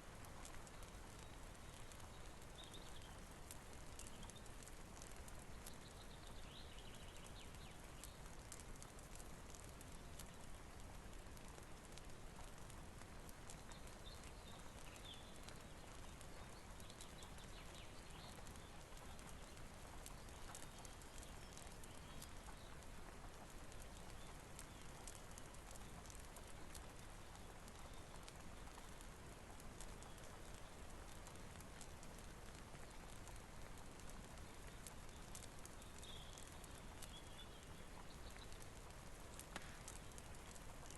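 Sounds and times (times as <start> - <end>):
fire crackling ticks: 0.0 - 40.9
steady rain hiss: 0.0 - 40.9.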